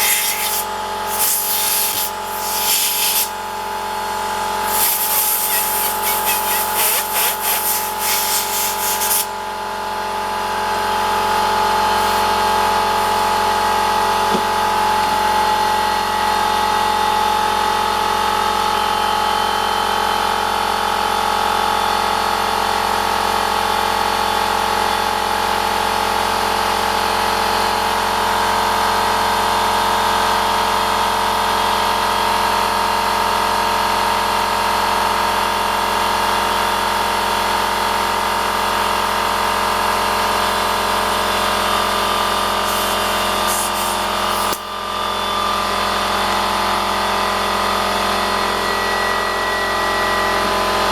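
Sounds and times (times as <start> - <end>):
pulsing hiss: 0.0 - 9.4, 42.6 - 44.6
air compressor running: 0.0 - 21.4, 22.4 - 50.9.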